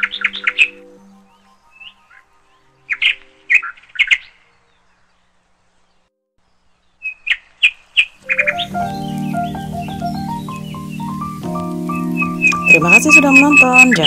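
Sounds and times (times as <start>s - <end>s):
music: 0.0s - 3.7s, 8.2s - 14.0s
small bird chirping: 0.0s - 14.0s.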